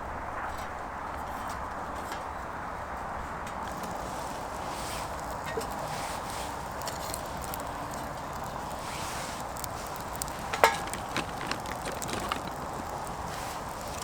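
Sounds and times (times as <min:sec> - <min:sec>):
wood fire hissing and crackling: 0:03.3 - 0:14.0
sharp wood crack: 0:06.6 - 0:14.0.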